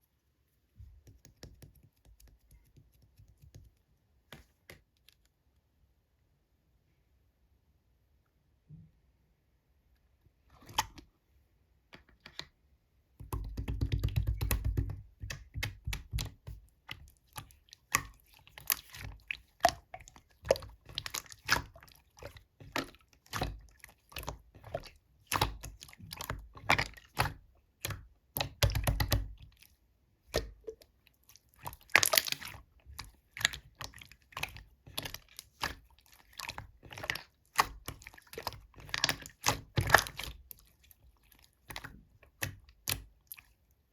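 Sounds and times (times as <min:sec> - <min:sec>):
slime squishing with sticky pops: 0:13.2 - 0:43.6
deep slime squelches: 0:13.2 - 0:43.9.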